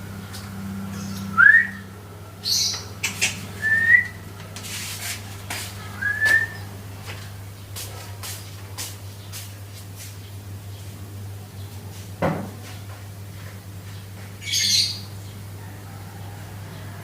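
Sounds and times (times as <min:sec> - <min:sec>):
buzzy hissing bird notes: 0:00.0 - 0:16.9
bird whistled notes: 0:01.2 - 0:01.9, 0:03.6 - 0:04.2, 0:06.0 - 0:06.7.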